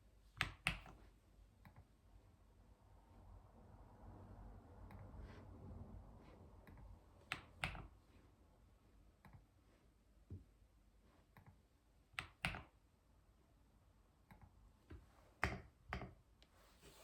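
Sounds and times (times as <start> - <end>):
computer keyboard keystrokes: 6.7 - 7.9, 12.2 - 12.7.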